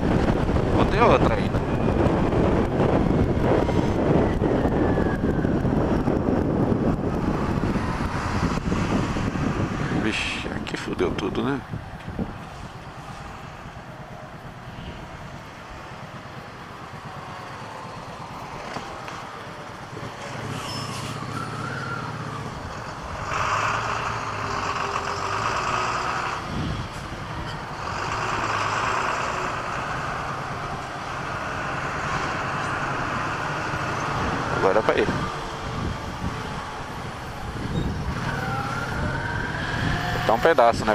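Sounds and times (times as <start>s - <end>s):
wind noise on microphone: 0.0s - 24.8s, 26.2s - 28.8s, 29.4s - 40.9s
road traffic rushing: 0.0s - 40.9s
motorcycle engine hum: 11.2s - 25.6s.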